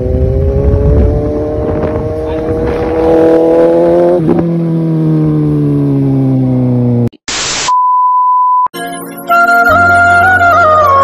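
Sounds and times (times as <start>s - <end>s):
motorcycle engine: 0.0s - 7.1s.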